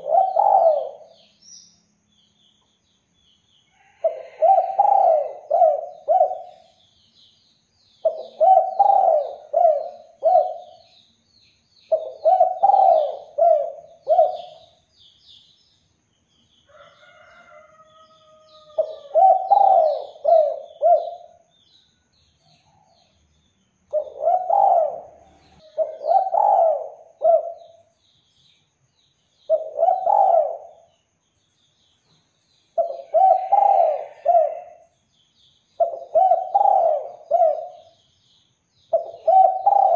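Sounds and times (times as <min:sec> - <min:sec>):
dove cooing: 0:00.0 - 0:01.3, 0:04.0 - 0:06.8, 0:08.0 - 0:10.8, 0:11.9 - 0:14.7, 0:18.6 - 0:21.4, 0:23.9 - 0:27.9, 0:29.5 - 0:30.9, 0:32.8 - 0:34.9, 0:35.8 - 0:38.0, 0:38.9 - 0:39.9
small birds chirping: 0:00.0 - 0:39.9.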